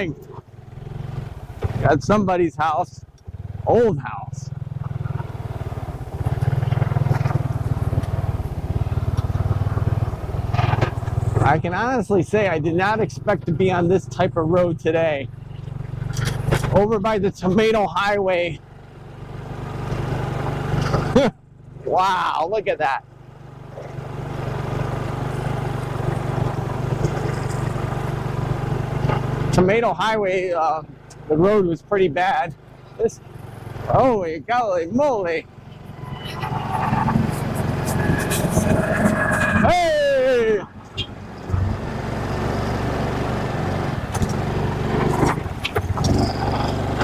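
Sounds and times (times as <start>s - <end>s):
knocks and rattles over bumps: 0.0s - 2.2s, 4.4s - 13.8s, 15.3s - 18.1s, 23.6s - 29.8s, 40.6s - 47.0s
wind and road noise: 0.0s - 21.9s, 22.6s - 47.0s
motorcycle engine running: 0.0s - 47.0s.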